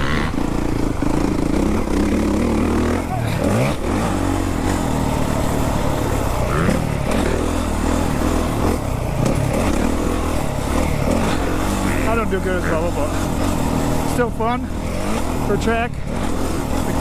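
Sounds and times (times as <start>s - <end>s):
motocross bike engine revving: 0.0s - 17.0s.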